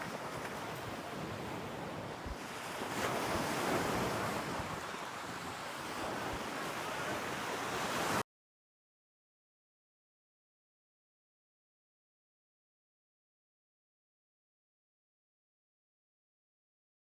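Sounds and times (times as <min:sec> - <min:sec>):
sea waves washing onto shore: 0:00.0 - 0:08.2
wind buffeting microphone: 0:00.0 - 0:08.2.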